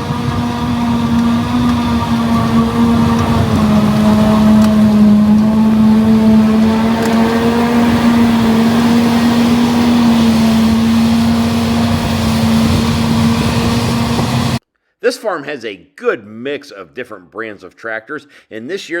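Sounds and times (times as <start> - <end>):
heavy diesel machinery running: 0.0 - 14.6.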